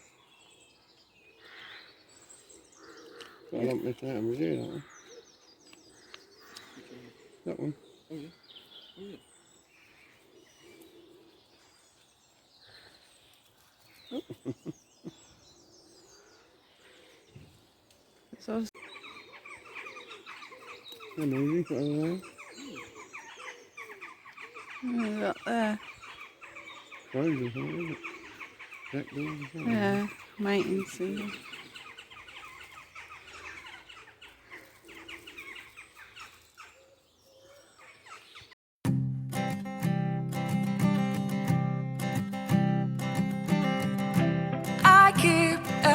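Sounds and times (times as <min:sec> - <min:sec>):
faint birds chirping: 0:00.0 - 0:38.6
flock of jackdaws calling: 0:01.3 - 0:03.8, 0:18.8 - 0:38.6.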